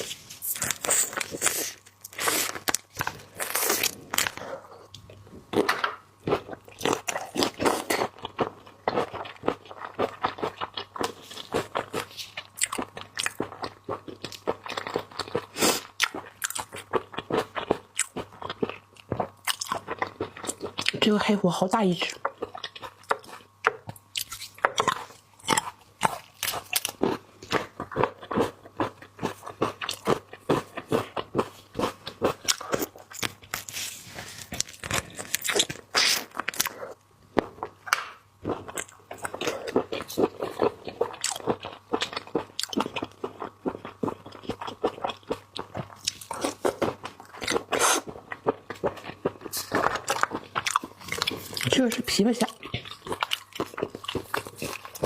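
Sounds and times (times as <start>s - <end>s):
crunching and chewing prawn: 0.0s - 55.0s.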